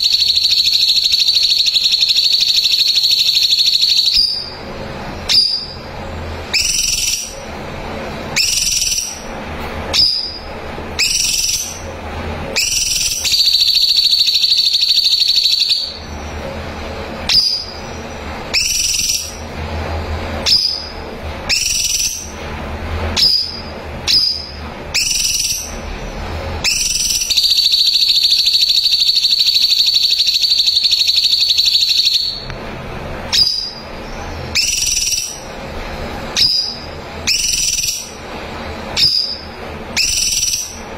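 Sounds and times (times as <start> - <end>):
bird whistled calls: 0.0 - 4.6, 5.3 - 5.8, 6.5 - 7.5, 8.4 - 9.3, 9.9 - 10.4, 11.0 - 11.9, 12.5 - 16.1, 17.3 - 19.4, 20.4 - 22.3, 23.2 - 25.8, 26.6 - 32.5, 33.3 - 33.9, 34.5 - 35.5, 36.4 - 38.2, 39.0 - 40.8
bird rapid trills: 0.0 - 7.7, 8.3 - 16.6, 17.3 - 19.7, 20.4 - 22.4, 23.2 - 25.8, 26.6 - 32.4, 33.3 - 35.6, 36.2 - 38.3, 38.9 - 40.9.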